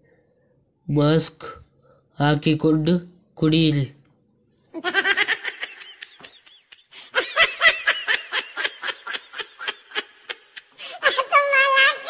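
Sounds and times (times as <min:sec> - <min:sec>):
high-pitched laughter: 0:04.8 - 0:12.0.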